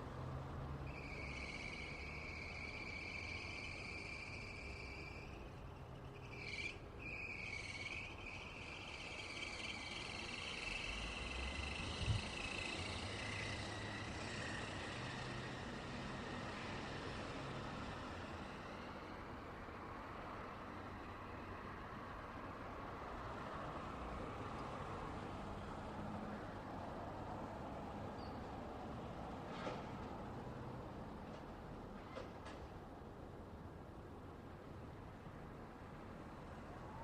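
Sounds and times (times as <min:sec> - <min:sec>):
road traffic rumbling: 0:00.0 - 0:37.0
insect chirr: 0:00.8 - 0:19.3.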